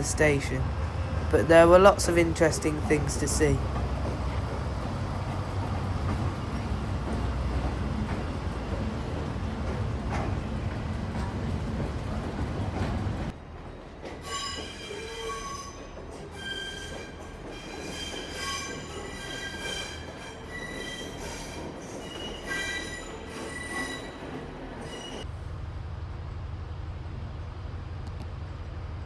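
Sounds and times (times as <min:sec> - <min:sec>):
train wheels squealing: 0:14.0 - 0:25.3.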